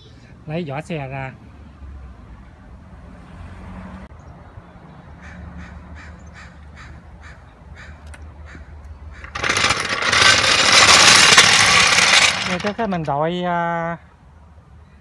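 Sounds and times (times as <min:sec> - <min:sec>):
loud metallic clatter: 0:09.2 - 0:13.0.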